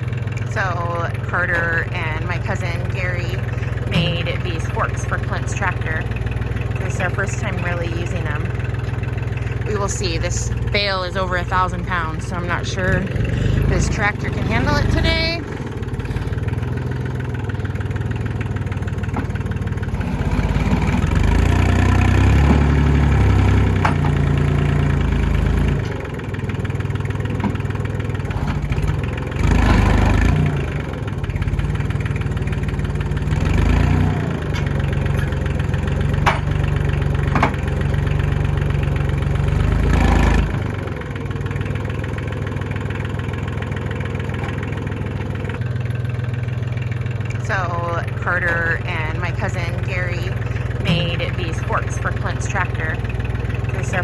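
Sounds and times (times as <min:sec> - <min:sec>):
tractor engine revving under load: 0:00.0 - 0:54.0.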